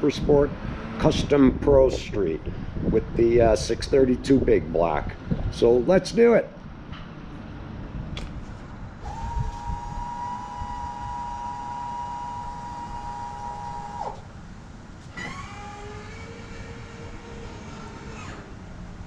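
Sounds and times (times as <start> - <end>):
electric fuel pump whining: 9.0 - 14.4, 15.0 - 18.6.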